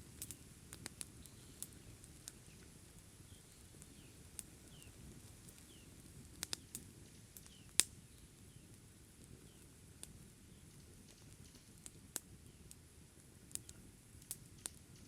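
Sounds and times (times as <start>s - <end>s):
soft chirps: 1.2s - 2.7s.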